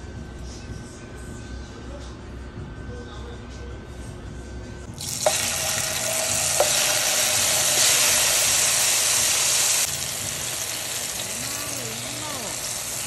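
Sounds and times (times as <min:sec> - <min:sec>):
tomato slices sizzling in oil: 0:05.0 - 0:13.0.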